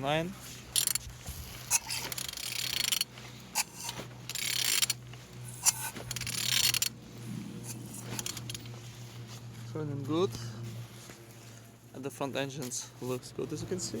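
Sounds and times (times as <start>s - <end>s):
car engine turned over by hand: 5.9s - 8.8s.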